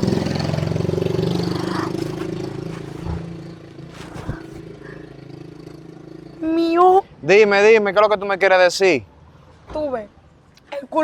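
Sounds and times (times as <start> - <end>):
vehicle engine running: 0.0 - 6.6.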